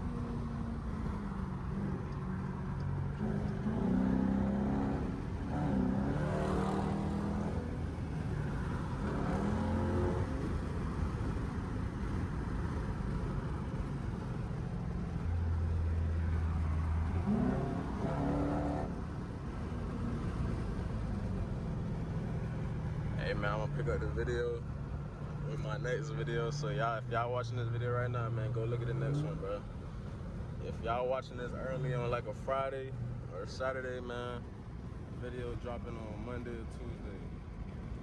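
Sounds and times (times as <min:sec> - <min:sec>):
loud car exhaust revving: 0:03.1 - 0:07.8, 0:16.8 - 0:19.0.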